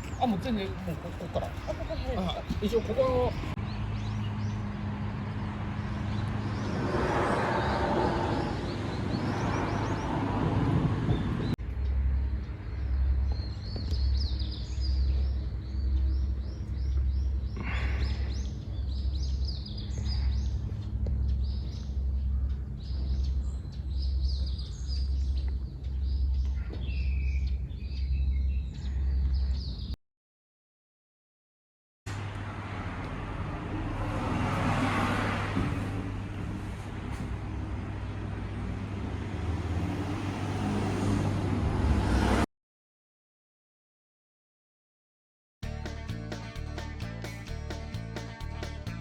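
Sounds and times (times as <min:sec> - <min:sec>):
small birds chirping: 0:00.0 - 0:07.0, 0:11.1 - 0:30.0.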